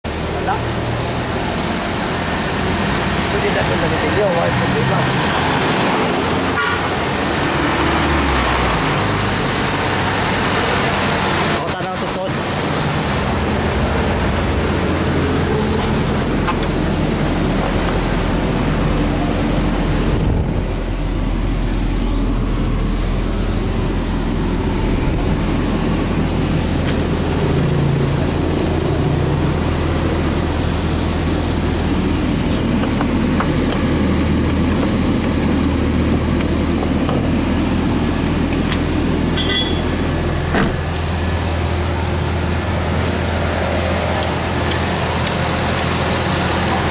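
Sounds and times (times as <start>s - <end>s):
car engine idling: 9.1s - 46.9s.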